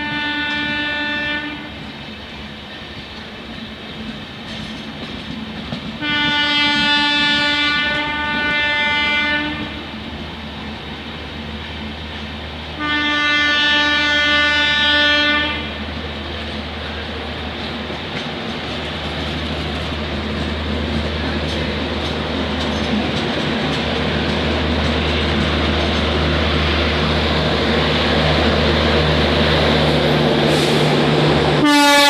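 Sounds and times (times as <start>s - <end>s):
locomotive horn blasts: 0.0s - 1.8s, 6.0s - 9.9s, 12.8s - 15.8s, 31.6s - 32.0s
moving train rumble and rail clatter: 0.0s - 32.0s.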